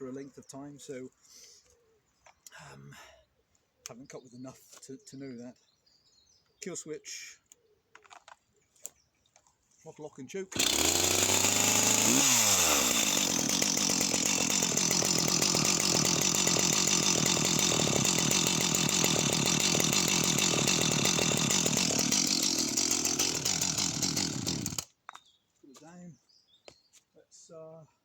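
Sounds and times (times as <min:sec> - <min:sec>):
chainsaw idling: 0:10.6 - 0:24.9.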